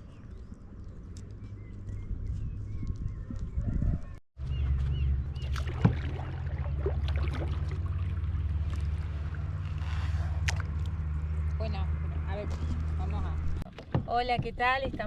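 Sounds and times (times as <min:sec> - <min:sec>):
paddle splashes and drips: 0:05.2 - 0:11.2.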